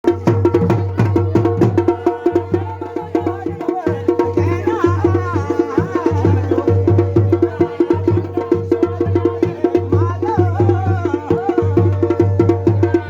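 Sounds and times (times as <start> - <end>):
drums playing fast rhythm: 0.0 - 13.0.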